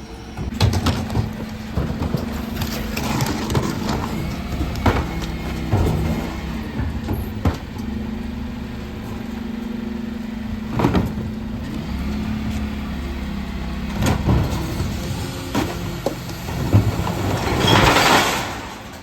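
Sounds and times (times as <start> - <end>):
truck engine running: 0.0 - 17.4
loud clanks: 16.8 - 19.0.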